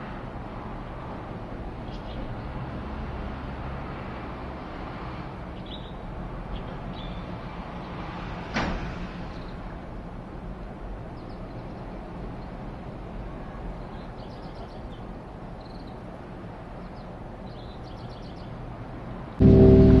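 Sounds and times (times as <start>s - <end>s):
aircraft flying overhead: 19.4s - 20.0s
brief sharp noise: 19.4s - 20.0s.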